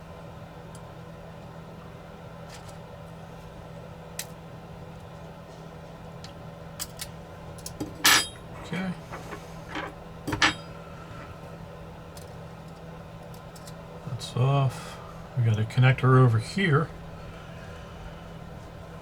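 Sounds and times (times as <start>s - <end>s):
metal tools clinking on workbench: 7.8s - 8.5s, 9.1s - 10.7s.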